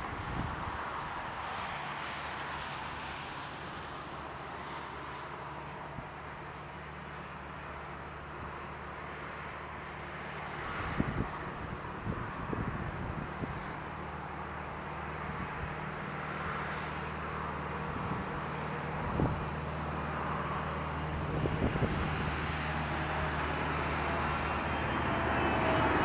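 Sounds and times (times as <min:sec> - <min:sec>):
jet engines roaring: 0:10.2 - 0:26.0.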